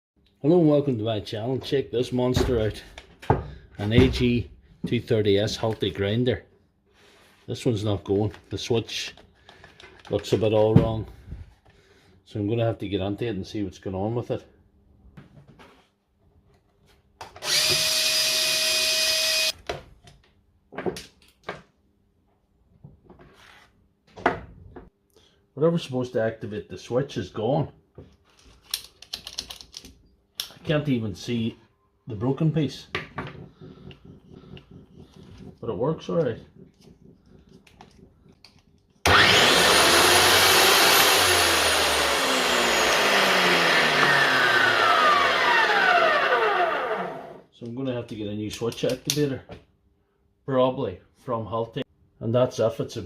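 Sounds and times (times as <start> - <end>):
angle grinder motor running: 17.4 - 19.5, 39.1 - 47.4.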